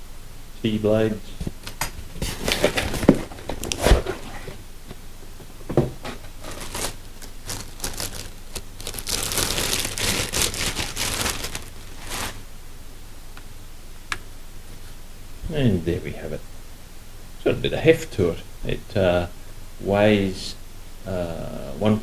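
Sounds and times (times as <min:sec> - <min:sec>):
packaging crinkling and rustling: 0:01.4 - 0:12.5.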